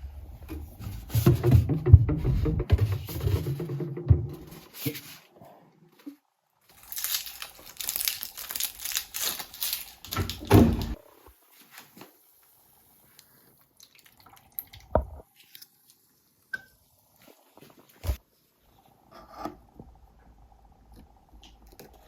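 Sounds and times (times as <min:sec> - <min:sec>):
loud thump: 0:01.2 - 0:04.7
sharp knock: 0:01.2 - 0:04.7.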